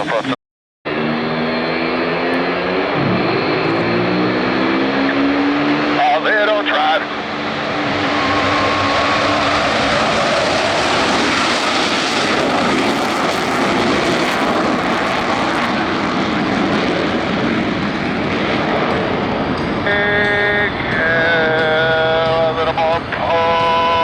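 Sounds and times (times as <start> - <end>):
jet roar overhead: 0.0 - 24.0.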